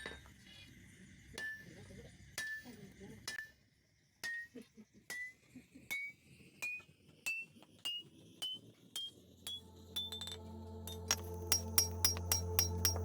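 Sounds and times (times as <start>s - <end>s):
hammer striking steel on anvil: 1.4s - 1.8s, 2.4s - 4.5s, 5.1s - 13.0s
background music: 9.5s - 13.0s.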